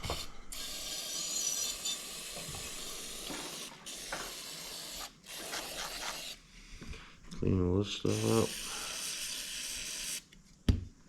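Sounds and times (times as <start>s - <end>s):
aerosol spray hissing: 2.4s - 6.4s, 8.0s - 10.3s.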